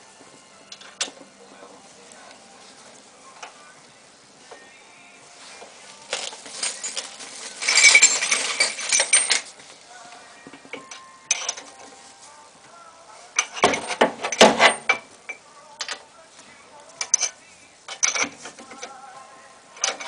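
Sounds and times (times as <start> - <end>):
metal tools clanking: 6.1 - 9.6, 10.7 - 11.8, 13.4 - 16.0, 17.0 - 18.9, 19.8 - 20.0.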